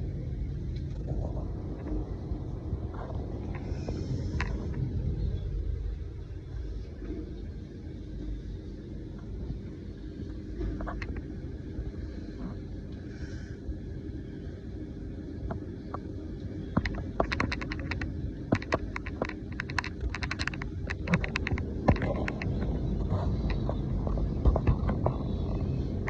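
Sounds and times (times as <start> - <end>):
wind buffeting microphone: 0.0 - 13.0, 13.7 - 26.0
patter of sharp clicks and taps: 16.7 - 25.2.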